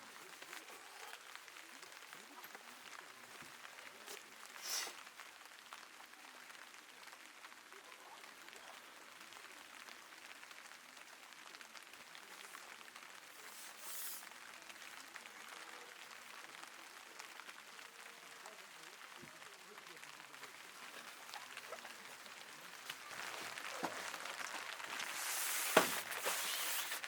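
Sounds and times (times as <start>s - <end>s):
light rain on tent fabric: 0.0s - 27.0s.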